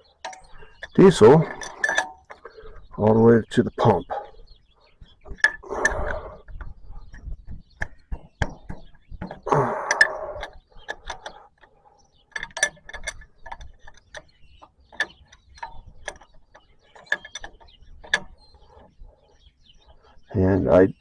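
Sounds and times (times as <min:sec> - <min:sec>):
metal wrench clicking and clinking: 0:00.2 - 0:02.6, 0:12.3 - 0:14.3.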